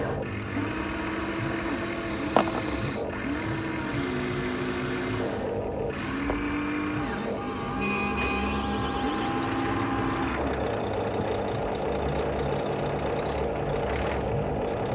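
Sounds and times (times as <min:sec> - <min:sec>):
electric motors whining: 0:00.0 - 0:10.7.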